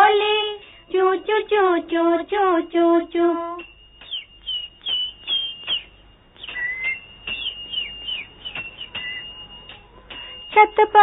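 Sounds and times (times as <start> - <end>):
thin steady high note: 3.2 - 11.0
songbird chirping: 4.0 - 9.9.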